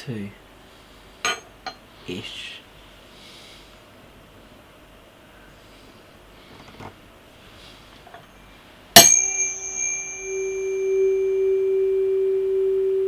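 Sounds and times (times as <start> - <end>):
resonance tube humming: 9.0 - 13.0
tuning fork ringing: 9.0 - 13.0.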